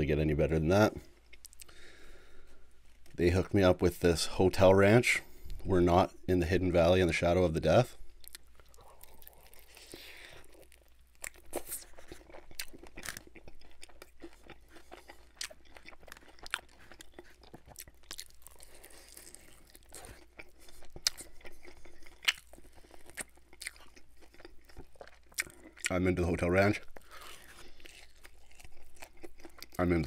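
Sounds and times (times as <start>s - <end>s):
chewing and biting chicken wing: 8.2s - 30.0s.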